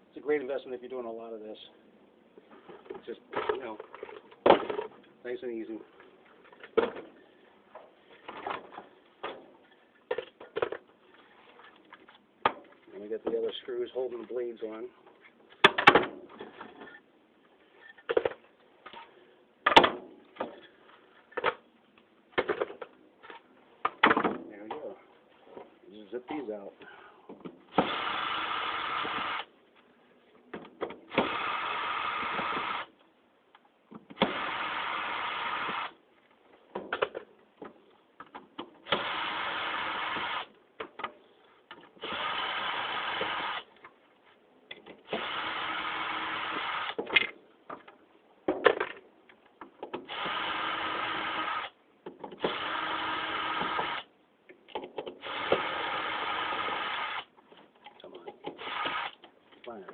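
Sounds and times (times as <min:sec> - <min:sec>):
electric drill-driver spinning screws: 0:27.8 - 0:29.5, 0:31.2 - 0:32.9, 0:34.2 - 0:36.0, 0:38.9 - 0:40.5, 0:42.0 - 0:43.7, 0:45.1 - 0:47.0, 0:50.1 - 0:51.8, 0:52.4 - 0:54.1, 0:55.2 - 0:57.3, 0:58.6 - 0:59.2.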